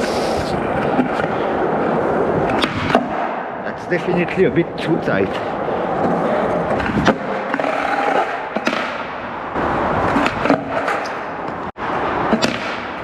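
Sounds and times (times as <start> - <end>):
skateboard wheels rolling on pavement: 0.0 - 13.0
skateboard clacks: 6.0 - 9.1, 12.2 - 13.0.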